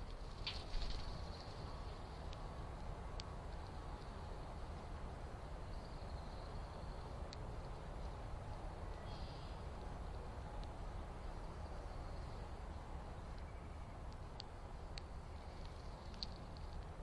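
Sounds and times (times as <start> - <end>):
low background rumble: 0.0 - 17.0
faint high bird chirps: 8.9 - 9.6, 13.4 - 14.0.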